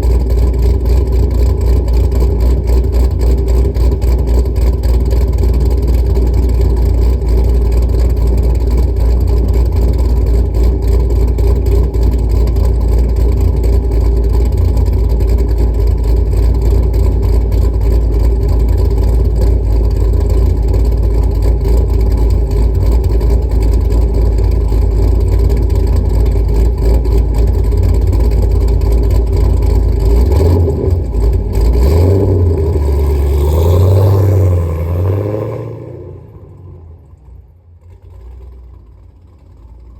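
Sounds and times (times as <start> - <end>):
car engine idling loud and choppy: 0.0 - 39.9.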